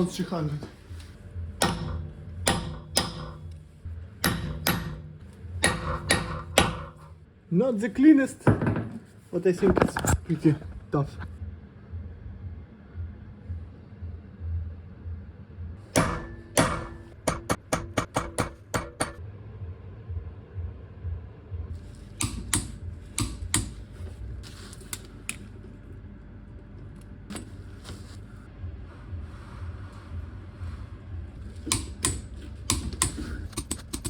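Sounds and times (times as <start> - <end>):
metal tools clicking on metal: 31.7 - 34.0.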